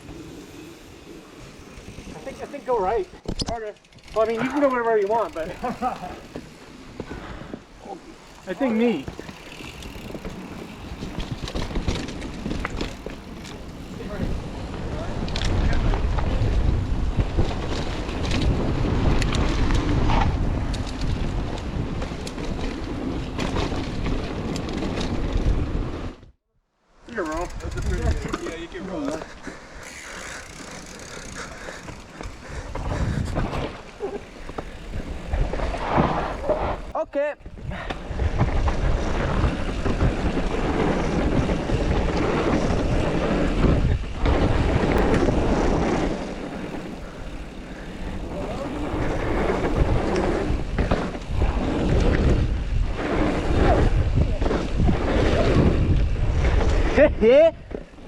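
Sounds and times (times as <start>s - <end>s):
tyres on dirt: 0.0s - 26.1s, 27.0s - 37.0s, 37.8s - 58.0s
bike clicks and rattles: 0.0s - 26.4s, 27.0s - 58.0s
wind buffeting microphone: 27.3s - 57.8s.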